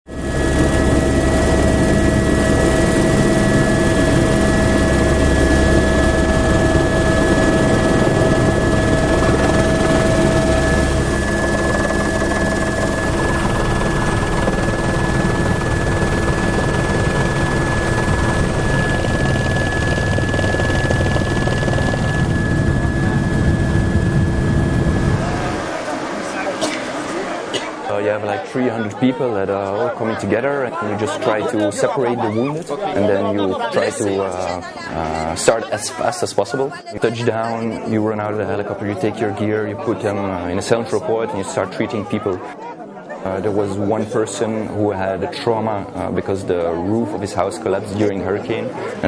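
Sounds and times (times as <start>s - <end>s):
high-pitched whine: 0.1s - 28.5s
helicopter rotor and engine: 0.1s - 37.9s.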